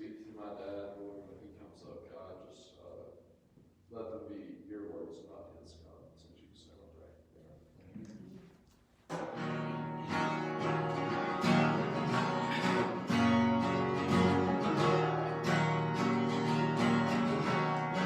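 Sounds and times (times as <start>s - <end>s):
strummed acoustic guitar: 9.1s - 18.0s
band playing instrumental: 9.2s - 18.0s.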